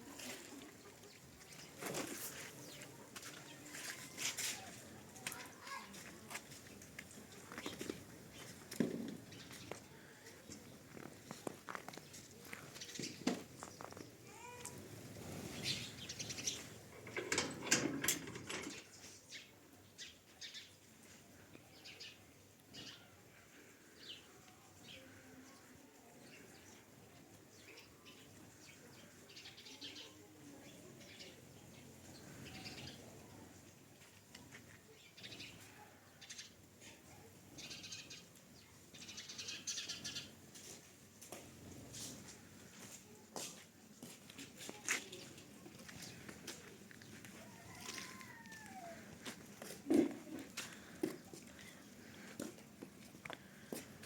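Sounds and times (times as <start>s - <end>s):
birds chirping: 4.6s - 17.6s, 18.5s - 40.5s.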